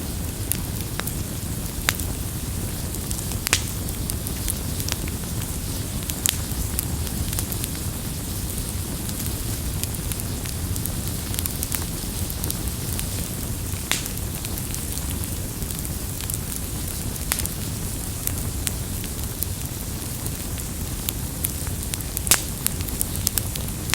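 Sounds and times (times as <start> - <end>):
burning wood crackling: 0.0 - 23.9
low rumble of flames: 0.0 - 23.9.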